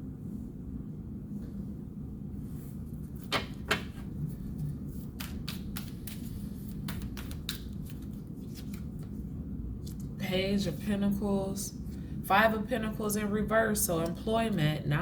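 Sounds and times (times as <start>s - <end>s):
steady low hum: 0.0s - 15.0s
cards snapping: 5.2s - 9.1s.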